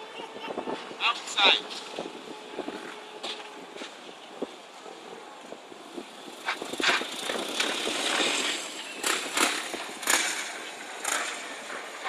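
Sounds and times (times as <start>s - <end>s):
motorcycle engine running: 6.2s - 12.0s.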